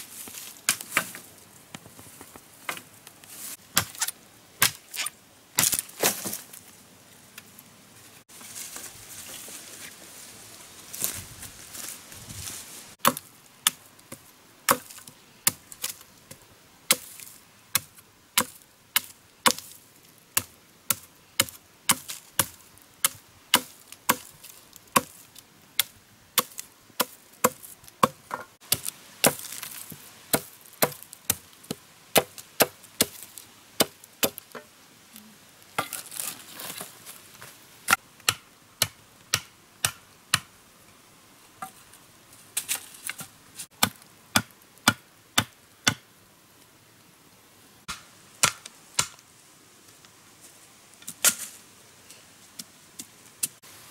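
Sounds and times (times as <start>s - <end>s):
blade chopping wood: 20.4s - 24.3s, 25.8s - 29.7s, 30.3s - 33.2s, 43.2s - 46.0s, 47.9s - 49.2s.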